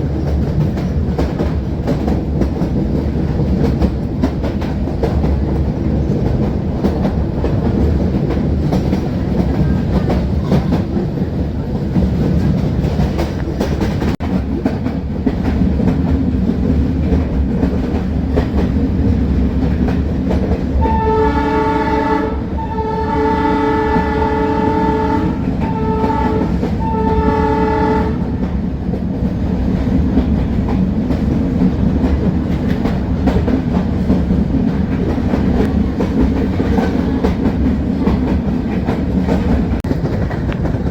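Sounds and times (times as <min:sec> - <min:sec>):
train wheels clicking over rail joints: 0:00.0 - 0:40.9
diesel locomotive horn blasts: 0:20.8 - 0:28.6.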